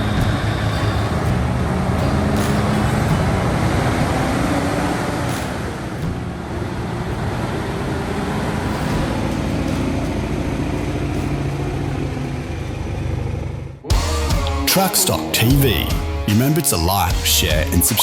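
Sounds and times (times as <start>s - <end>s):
traffic rumble: 0.0s - 18.0s
truck diesel engines running: 0.0s - 18.0s.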